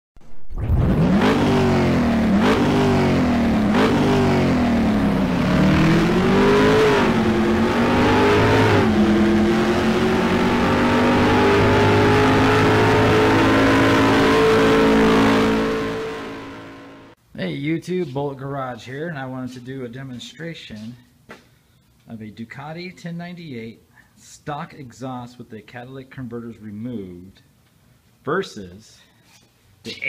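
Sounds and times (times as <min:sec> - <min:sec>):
engine accelerating through gears: 0:00.5 - 0:17.2.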